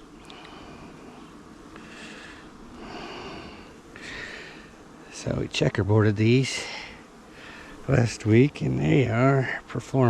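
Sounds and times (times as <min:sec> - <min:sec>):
person breathing through nose: 0:01.8 - 0:04.7.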